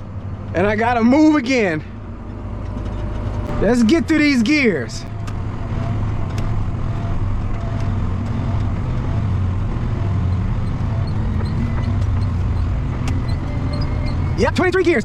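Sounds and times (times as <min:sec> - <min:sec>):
tractor engine running: 0:00.0 - 0:15.0
sharp rattles and knocks: 0:05.1 - 0:14.4.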